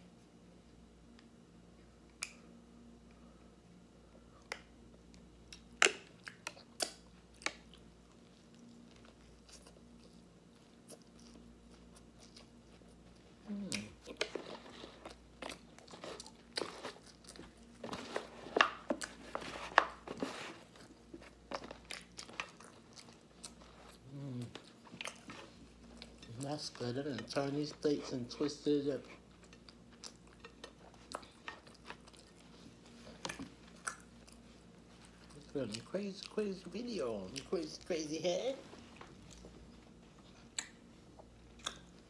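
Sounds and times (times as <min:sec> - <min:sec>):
faint steady hum: 0:00.0 - 0:42.0
crunchy chewing: 0:04.4 - 0:37.9.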